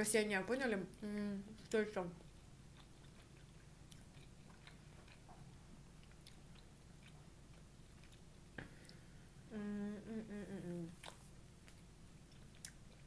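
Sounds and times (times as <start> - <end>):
low steady hum: 0.0 - 13.0
person chewing: 2.2 - 9.4, 10.9 - 13.0.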